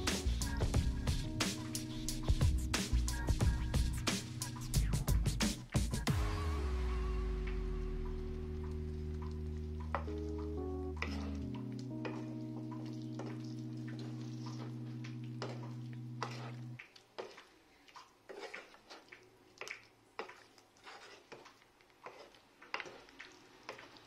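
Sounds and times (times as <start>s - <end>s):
background music with held notes: 0.0s - 5.4s, 6.0s - 16.8s
spatula scraping frying pan: 11.0s - 12.2s, 15.4s - 17.5s, 18.3s - 19.2s, 20.2s - 24.0s.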